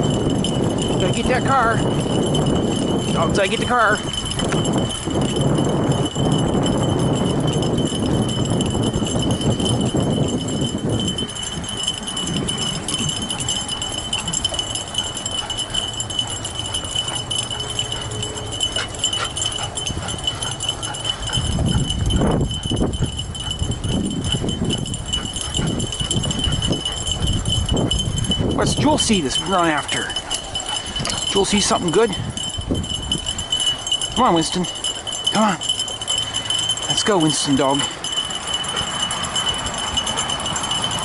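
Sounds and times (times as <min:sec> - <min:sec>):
thin steady whine: 0:00.0 - 0:41.0.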